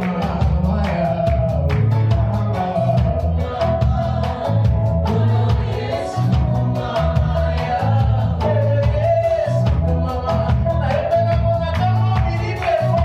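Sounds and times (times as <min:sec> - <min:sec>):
gospel band playing: 0:00.0 - 0:13.0
voices singing together: 0:00.0 - 0:13.0.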